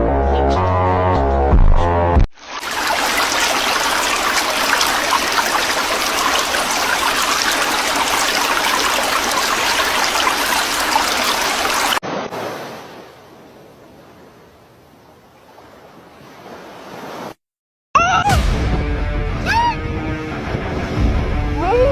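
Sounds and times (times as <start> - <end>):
rushing water: 2.4 - 17.4.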